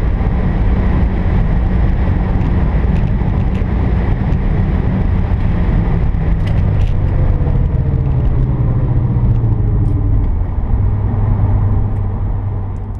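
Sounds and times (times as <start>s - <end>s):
car engine at high speed: 0.0s - 12.9s
road and wind noise: 0.0s - 12.9s.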